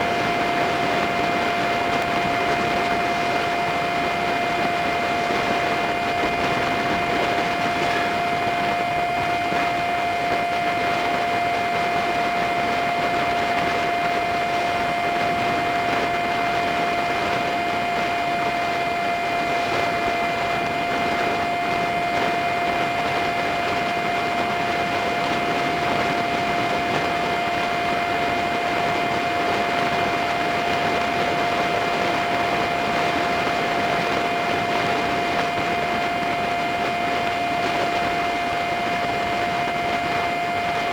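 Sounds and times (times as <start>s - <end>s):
motorcycle engine whine: 0.0s - 40.9s.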